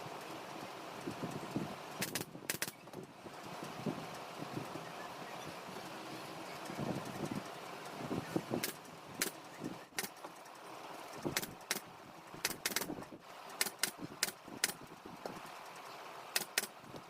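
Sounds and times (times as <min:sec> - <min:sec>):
low steady hiss: 0:00.0 - 0:17.0
sharp short clicks: 0:02.0 - 0:03.0, 0:08.6 - 0:10.4, 0:11.2 - 0:14.9, 0:16.3 - 0:17.0.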